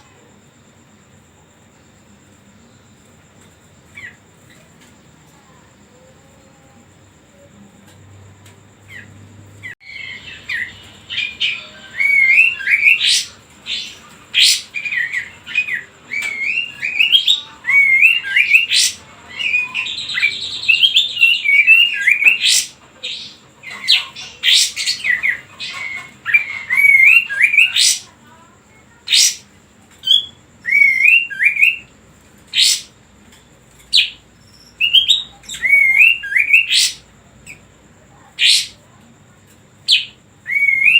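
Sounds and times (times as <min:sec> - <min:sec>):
songbird warbling and chipping: 0:09.8 - 0:28.3, 0:28.9 - 0:31.9, 0:32.5 - 0:33.0, 0:33.8 - 0:38.9.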